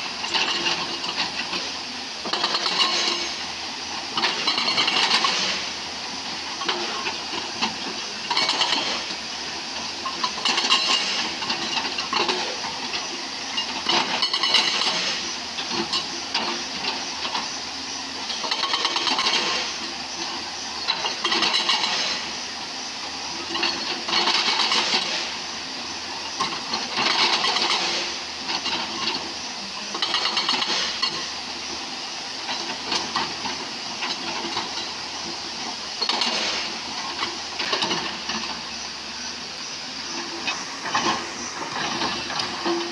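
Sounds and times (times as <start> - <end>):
excavator engine running: 0.0 - 42.9
hissing grating of stones: 6.5 - 16.0, 20.4 - 22.4, 26.2 - 42.9.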